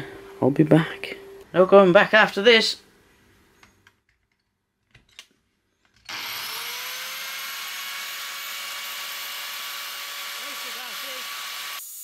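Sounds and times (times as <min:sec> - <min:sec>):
angle grinder whining: 0:06.0 - 0:12.0.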